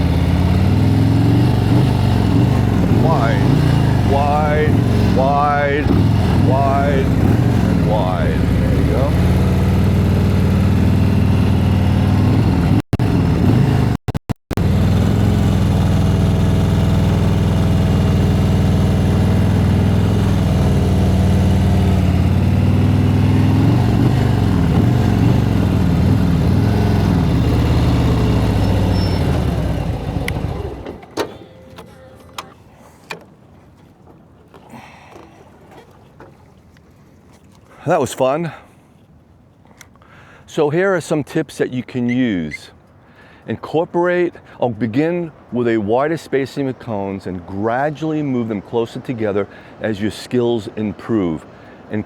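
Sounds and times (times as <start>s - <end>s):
motorcycle engine at low revs: 0.0s - 31.4s.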